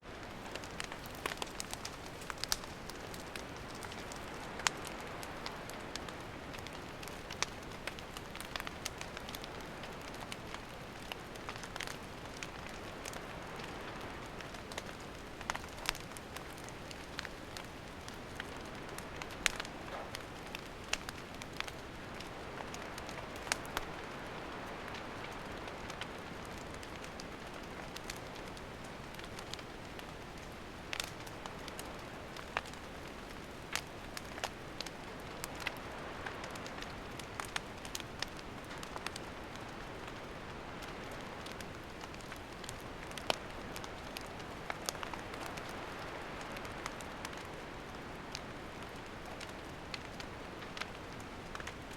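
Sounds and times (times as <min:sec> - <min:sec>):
campfire crackling and hissing: 0:00.0 - 0:51.9.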